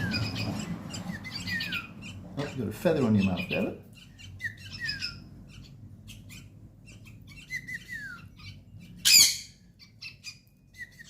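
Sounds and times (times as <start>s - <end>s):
baby birds chirping: 0.0s - 11.0s
loud harsh bird squawk: 3.2s - 10.4s.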